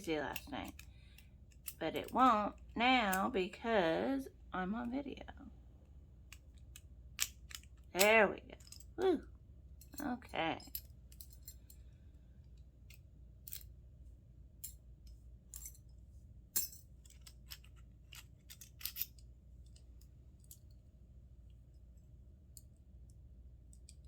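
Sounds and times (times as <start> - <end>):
small metal parts clicking: 0.3 - 3.2, 6.2 - 9.0, 9.8 - 13.7, 14.6 - 16.0, 16.6 - 20.8.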